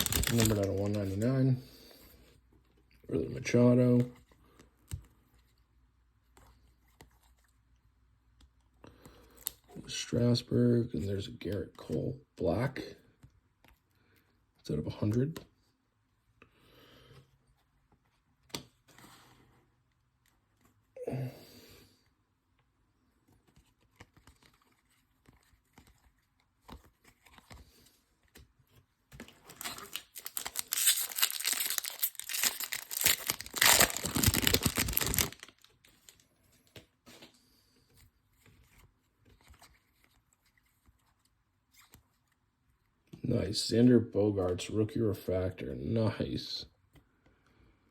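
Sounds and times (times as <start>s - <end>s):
foil wrapper tearing and crinkling: 0.0s - 1.2s, 29.4s - 36.2s.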